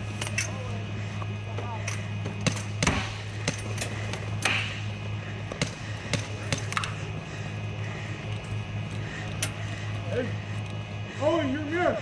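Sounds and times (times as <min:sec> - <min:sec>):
steady low hum: 0:00.0 - 0:12.0
airsoft gun shots: 0:02.4 - 0:03.7.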